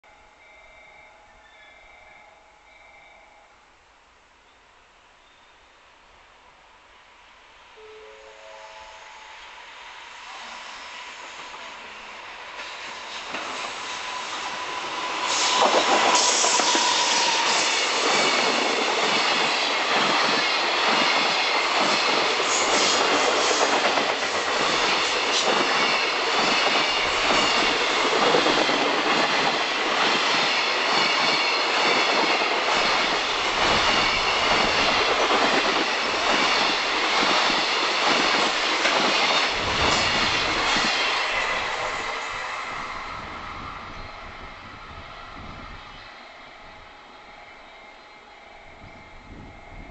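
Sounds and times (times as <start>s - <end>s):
electric locomotive whine: 0.0s - 49.9s.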